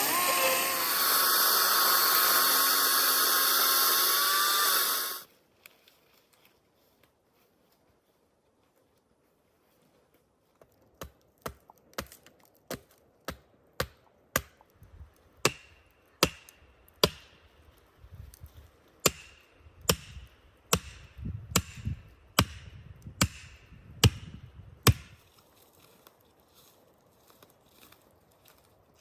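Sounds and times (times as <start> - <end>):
axe chopping wood: 11.0 - 14.6, 15.4 - 17.3, 19.0 - 25.2.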